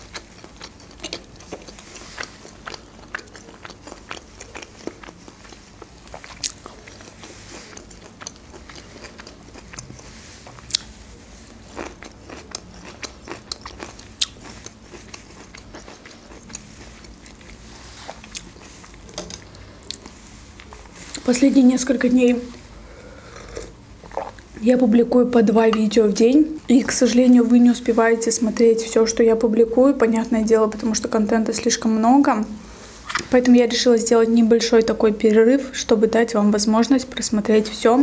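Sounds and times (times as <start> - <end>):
person chewing food: 0.0 - 21.3, 22.5 - 24.6.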